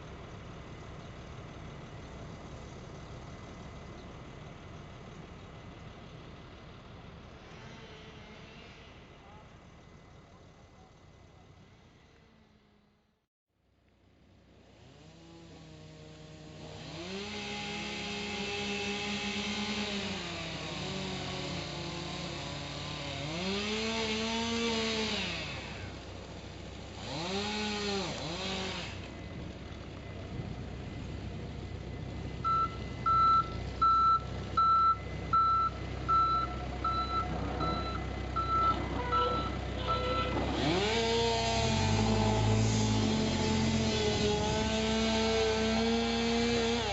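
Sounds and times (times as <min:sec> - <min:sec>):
engine revving: 0:14.6 - 0:26.1, 0:26.9 - 0:29.2, 0:32.5 - 0:46.9
reversing alarm beeping: 0:32.4 - 0:40.4.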